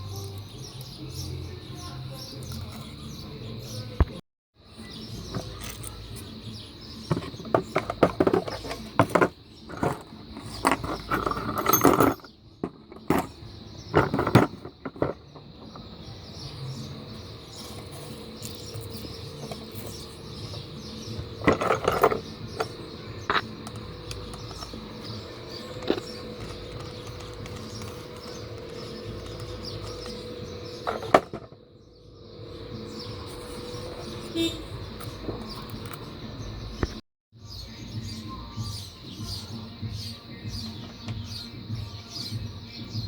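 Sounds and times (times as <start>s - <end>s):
blender parts clicking and scraping: 7.2s - 13.4s, 17.5s - 30.2s.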